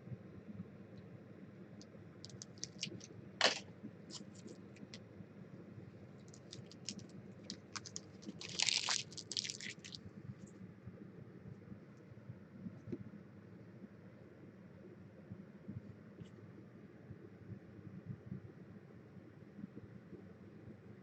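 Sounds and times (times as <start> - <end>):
light clicks of card packs: 2.2 - 5.0
packaging rustling scrape: 2.3 - 4.5, 6.3 - 10.0.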